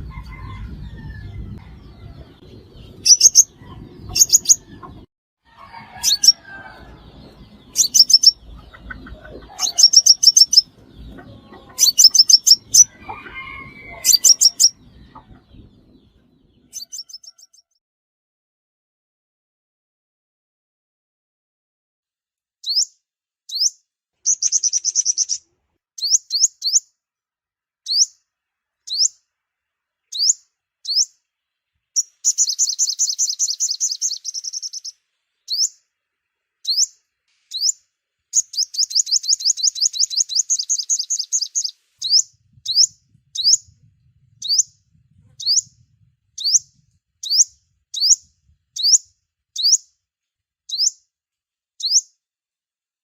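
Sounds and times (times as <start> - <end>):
bird chirps sweeping upward: 0.2 - 5.0, 5.8 - 17.7, 22.6 - 22.9, 23.5 - 26.9, 27.9 - 28.2, 28.9 - 29.2, 30.1 - 31.2, 31.9 - 35.8, 36.6 - 49.9, 50.7 - 51.0, 51.8 - 52.1
bird rapid trills: 2.9 - 4.7, 6.0 - 6.5, 7.6 - 15.8, 24.3 - 25.4, 32.0 - 34.9.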